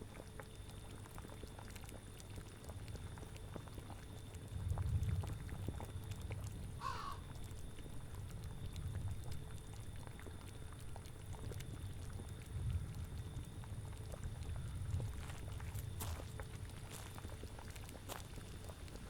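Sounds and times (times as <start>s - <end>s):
cauldron boiling: 0.0s - 19.0s
animal cry: 6.8s - 7.3s.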